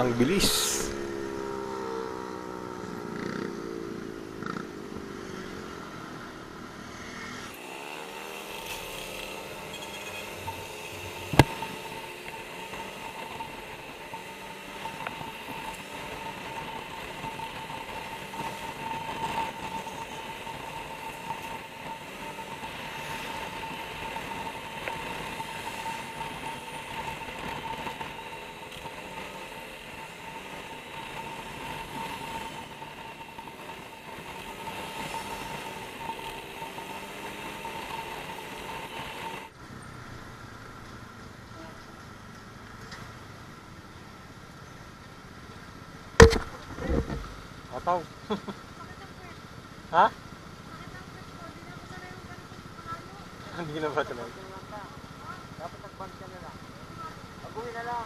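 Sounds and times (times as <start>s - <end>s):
motorcycle engine running: 0.0s - 42.2s, 48.2s - 58.0s
sharp knock: 46.2s - 46.5s.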